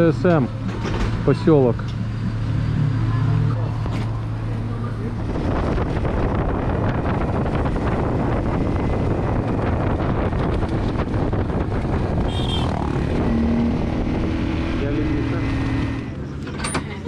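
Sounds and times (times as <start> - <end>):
low engine hum: 0.0 - 17.0
wind buffeting microphone: 5.1 - 14.8.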